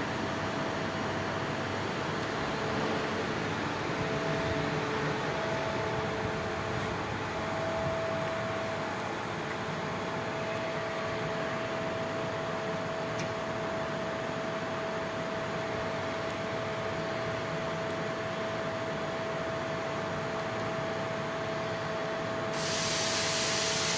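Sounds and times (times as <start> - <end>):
machine hum: 0.0 - 22.8
laser cutting machine hiss: 22.5 - 23.9.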